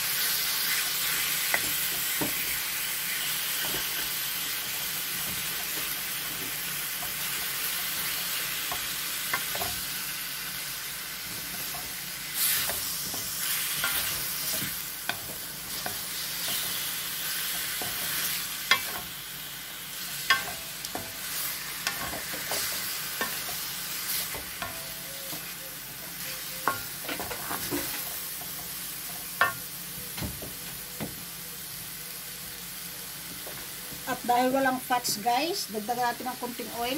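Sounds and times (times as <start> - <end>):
chicken sizzling in a wok: 0.0 - 36.9
wooden spatula scraping: 11.3 - 19.0.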